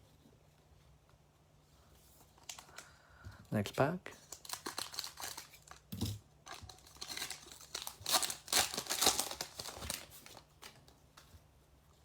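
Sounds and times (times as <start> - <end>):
foil wrapper tearing and crinkling: 4.2 - 10.8.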